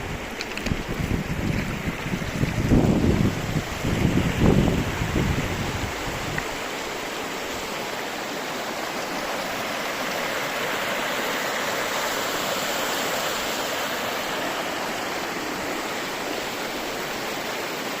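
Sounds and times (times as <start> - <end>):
wind buffeting microphone: 0.0 - 6.7
river water rushing: 0.0 - 18.0.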